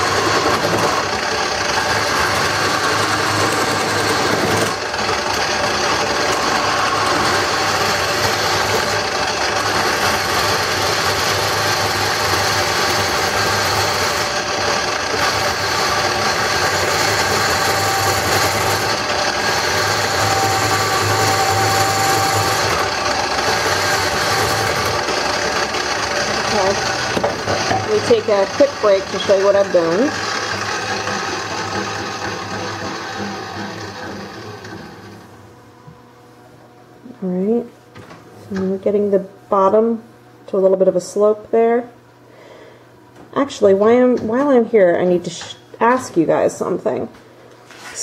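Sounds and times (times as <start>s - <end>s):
turning tool scraping wood: 0.0s - 35.4s, 47.6s - 48.0s
wood lathe motor hum: 0.0s - 36.0s.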